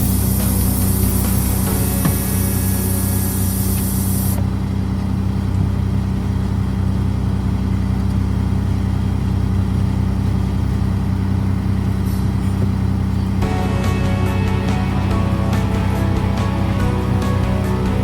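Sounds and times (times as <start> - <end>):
high hiss: 0.0 - 4.4
low machine hum: 0.0 - 18.0.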